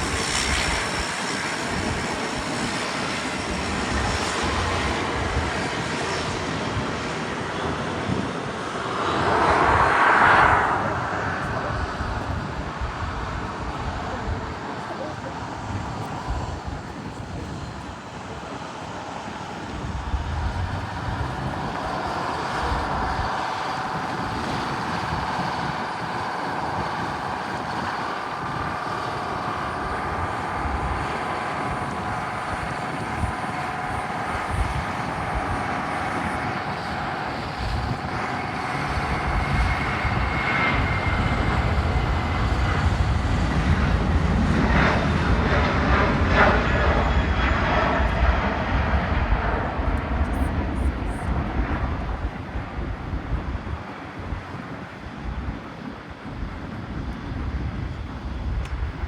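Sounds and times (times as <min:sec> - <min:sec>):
jet engines whining: 0:00.0 - 0:59.0
low rumble: 0:08.8 - 0:14.5.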